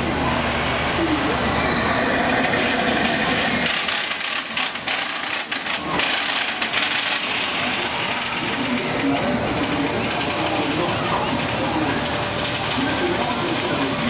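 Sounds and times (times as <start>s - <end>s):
theme-park ride running: 0.0s - 14.0s.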